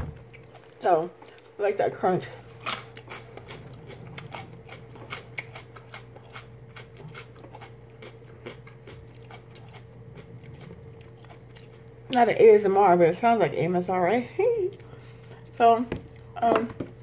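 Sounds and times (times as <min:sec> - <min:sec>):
faint steady hum: 0:00.0 - 0:17.0
carrot crunching: 0:02.2 - 0:12.2.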